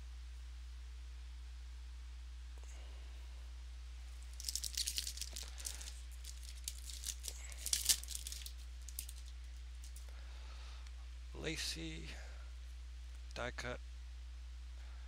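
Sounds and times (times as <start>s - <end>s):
wrapper tearing and crinkling: 4.2s - 10.0s.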